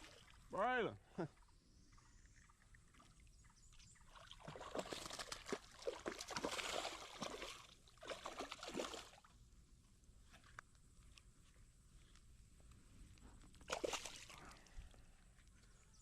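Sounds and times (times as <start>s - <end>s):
water splashing and sloshing: 0.0s - 0.6s, 1.2s - 9.4s, 13.4s - 15.8s.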